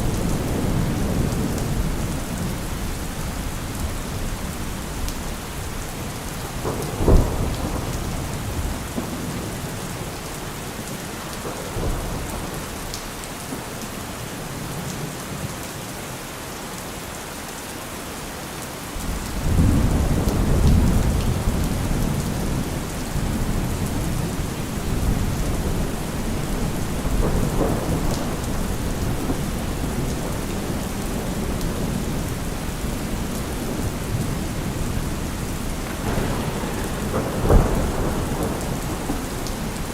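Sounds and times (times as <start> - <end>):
steady rain falling: 0.0 - 39.9
thunder clap: 6.5 - 9.9, 19.1 - 39.9
low thunder rumble: 19.0 - 39.9.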